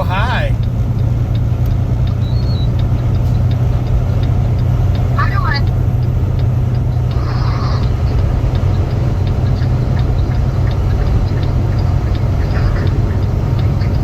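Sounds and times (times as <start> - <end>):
road noise: 0.0 - 14.0
truck engine drone: 0.0 - 14.0
faint ticks: 0.6 - 14.0.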